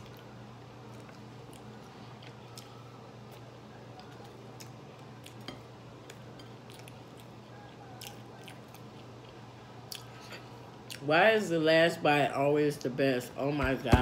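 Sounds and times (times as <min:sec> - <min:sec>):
person chewing food: 0:00.0 - 0:11.0
steady low hum: 0:00.0 - 0:14.0.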